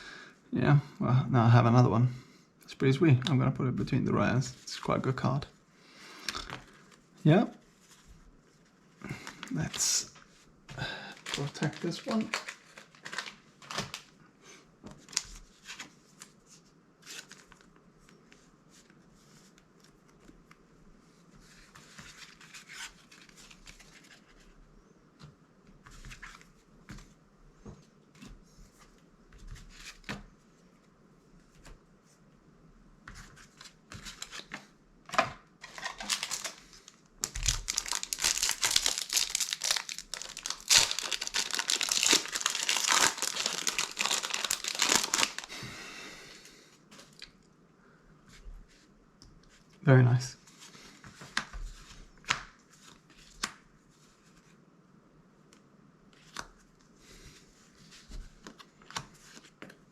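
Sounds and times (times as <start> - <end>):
plastic sleeve rustling: 11.1 - 14.2, 35.6 - 45.5
trading cards rustling and clicking: 11.2 - 14.1, 33.1 - 45.5
foil wrapper tearing: 11.3 - 14.0, 35.7 - 36.6, 37.2 - 45.5.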